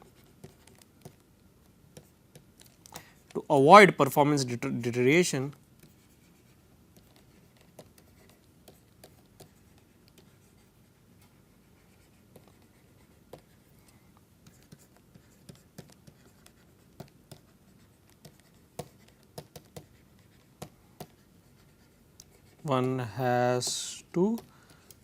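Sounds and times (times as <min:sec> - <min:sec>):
pen scratching on paper: 0:00.0 - 0:01.2, 0:05.8 - 0:13.7, 0:14.4 - 0:22.7.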